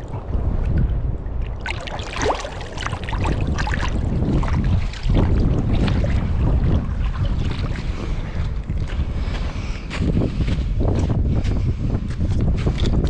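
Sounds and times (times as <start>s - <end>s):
water splashing and trickling: 0.0s - 9.5s, 12.6s - 13.0s
wind on microphone: 0.0s - 13.0s.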